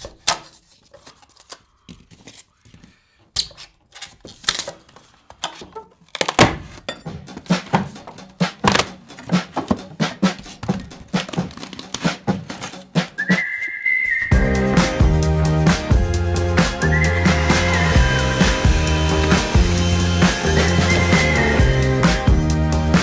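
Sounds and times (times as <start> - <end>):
background music with beat: 7.0 - 13.5, 14.3 - 23.0.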